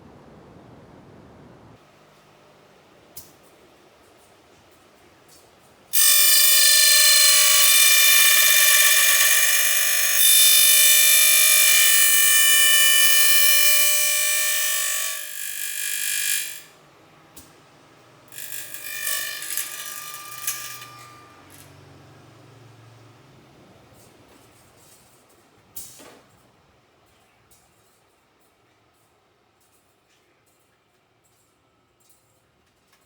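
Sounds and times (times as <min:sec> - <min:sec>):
milling machine screeching: 0:06.0 - 0:16.6, 0:18.4 - 0:21.7.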